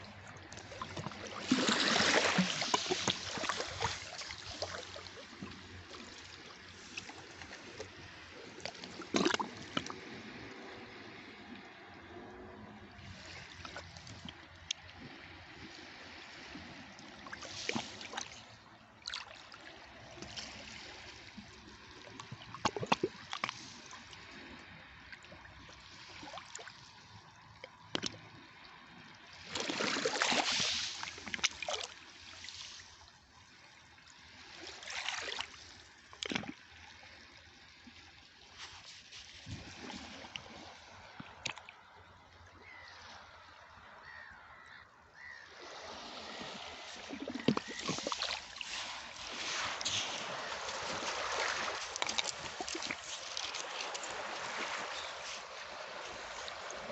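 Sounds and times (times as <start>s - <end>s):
seawater lapping at the shore: 0.0s - 56.9s
sharp water splashes: 0.7s - 5.3s, 29.5s - 32.8s, 46.4s - 56.9s.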